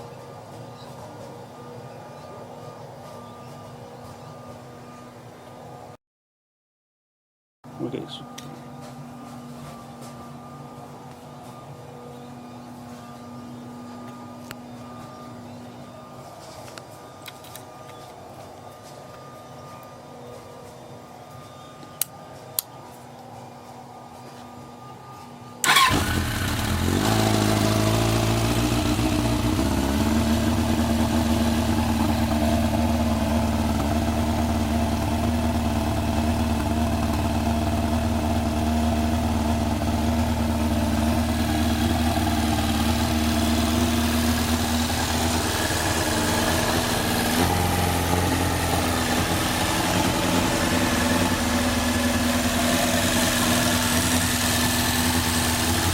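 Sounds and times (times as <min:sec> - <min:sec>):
click: 0:22.0 - 0:22.7
motorcycle engine starting and idling: 0:25.6 - 0:55.9.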